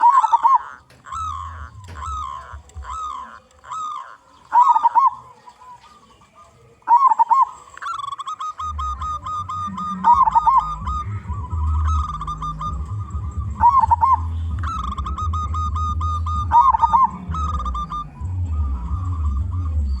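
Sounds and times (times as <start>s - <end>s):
dove cooing: 0.0s - 20.0s.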